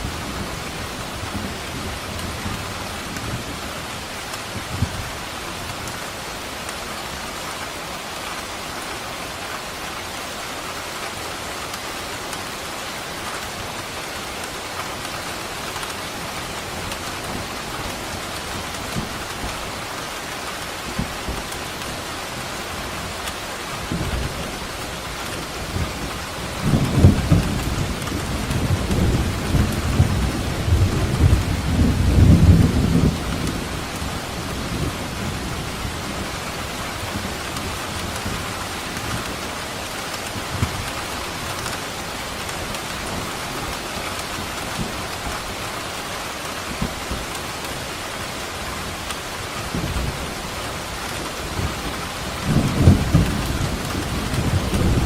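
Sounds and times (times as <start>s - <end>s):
steady rain falling: 0.0s - 55.0s
rolling thunder: 51.4s - 55.0s.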